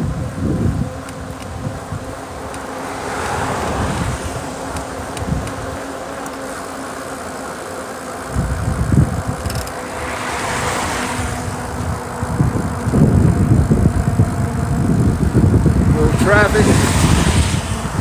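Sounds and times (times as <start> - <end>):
wind buffeting microphone: 0.0 - 18.0
car tyres hissing on wet road: 2.1 - 8.3, 9.7 - 12.5, 15.2 - 18.0.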